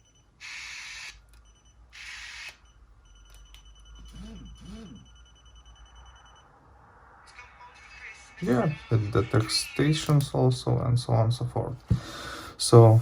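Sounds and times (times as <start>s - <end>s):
fast high beeping: 0.9s - 6.7s.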